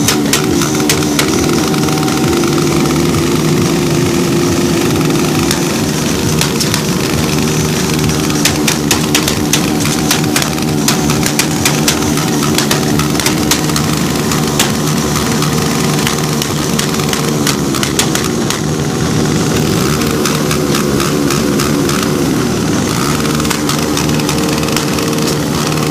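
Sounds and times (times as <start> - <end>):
motorcycle engine idling: 0.0 - 25.9
sharp clicks: 4.9 - 18.7.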